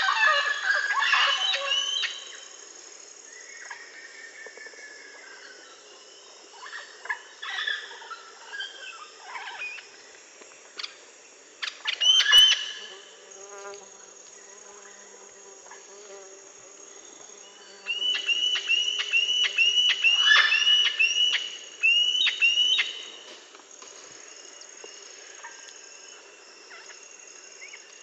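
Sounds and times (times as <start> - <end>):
high-pitched insect drone: 11.6 - 23.2.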